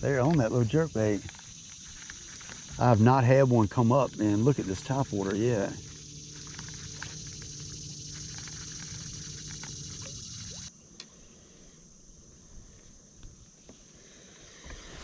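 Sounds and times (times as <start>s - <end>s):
low hum: 0.0s - 10.7s
high insect buzz: 0.0s - 15.0s.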